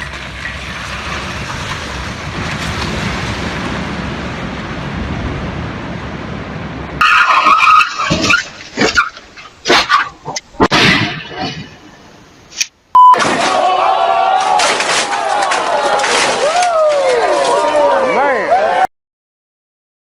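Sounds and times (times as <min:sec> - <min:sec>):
tyre skid: 0:00.0 - 0:04.5, 0:07.0 - 0:11.9
car road noise: 0:00.0 - 0:12.7.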